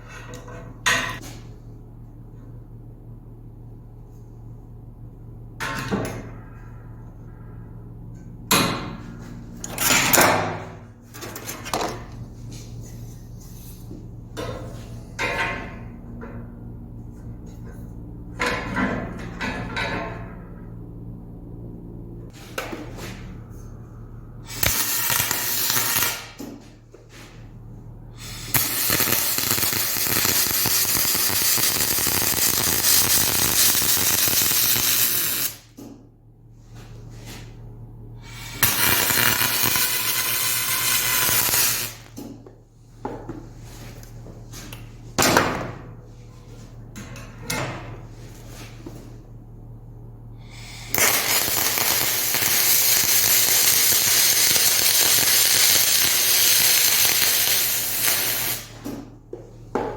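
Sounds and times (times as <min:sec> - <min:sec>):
low electrical hum: 0:00.0 - 0:59.9
welding arc hiss and crackle: 0:24.5 - 0:26.6, 0:28.2 - 0:35.9, 0:38.3 - 0:42.2, 0:50.6 - 0:58.9.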